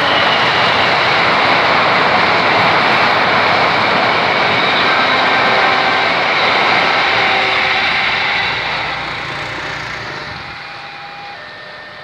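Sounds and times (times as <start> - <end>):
train wheels rushing on rails: 0.0 - 12.0.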